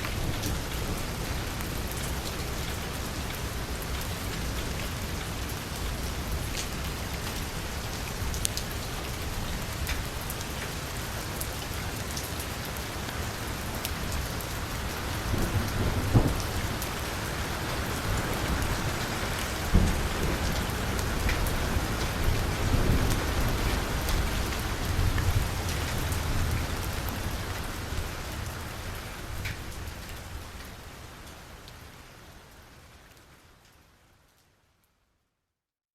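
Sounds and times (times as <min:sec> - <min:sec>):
heavy rain on car roof: 0:00.0 - 0:31.6
thunder rumbling: 0:14.8 - 0:27.8.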